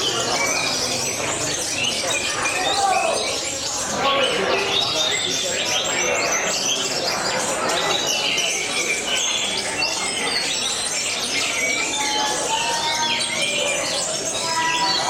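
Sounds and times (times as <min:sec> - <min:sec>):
canaries singing: 0:00.0 - 0:15.0
murmur of voices: 0:00.0 - 0:15.0.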